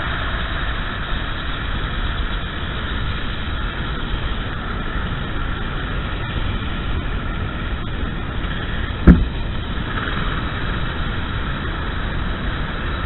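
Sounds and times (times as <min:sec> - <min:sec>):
kart engine and wind noise: 0:00.0 - 0:13.0
sharp thump: 0:09.0 - 0:09.4.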